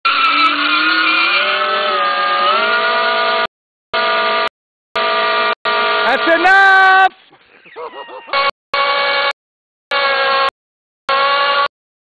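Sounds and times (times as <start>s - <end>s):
electric motor whining: 0.1s - 5.5s.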